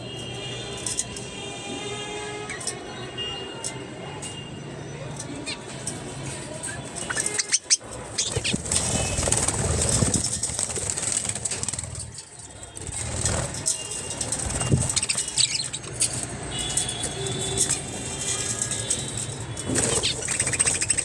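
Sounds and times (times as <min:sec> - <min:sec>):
birds flapping wings: 0:06.9 - 0:21.0.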